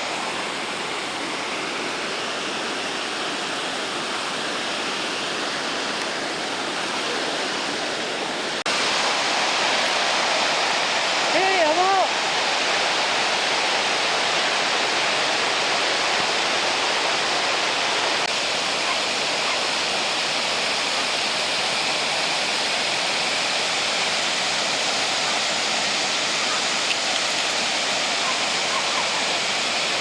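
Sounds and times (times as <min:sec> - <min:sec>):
waterfall pouring over rock: 0:08.6 - 0:30.0.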